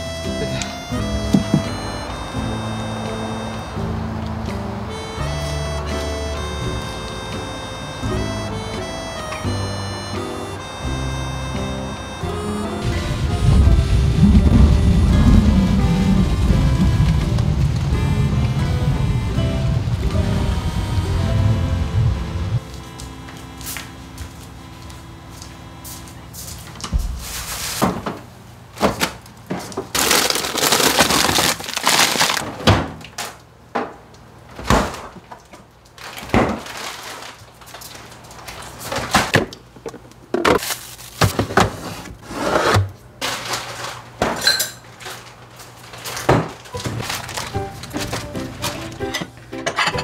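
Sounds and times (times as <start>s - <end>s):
rushing noise: 12.6s - 22.6s
dishes and containers clinking: 43.2s - 45.3s, 46.1s - 50.0s.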